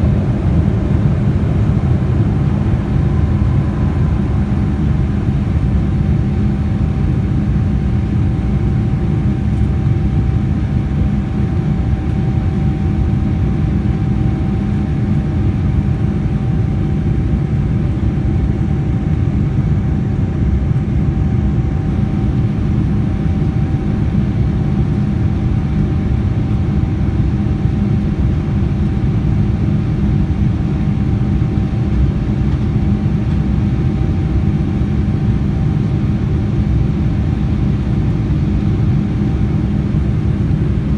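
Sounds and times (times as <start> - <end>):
jet engine drone in cabin: 0.0 - 40.9.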